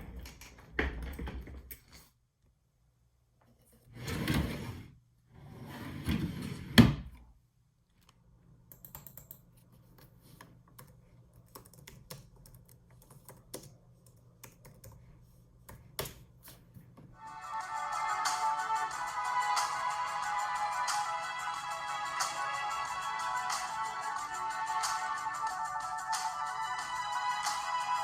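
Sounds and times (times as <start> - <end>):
typing on computer keyboard: 8.7 - 9.5, 10.7 - 15.0.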